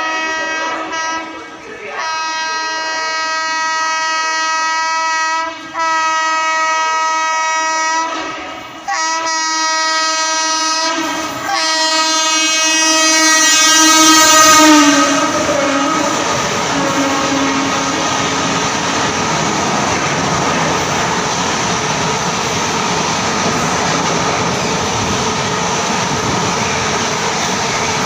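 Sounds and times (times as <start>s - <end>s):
train horn blasts: 0.0s - 18.6s
train rushing and clattering: 7.5s - 28.0s.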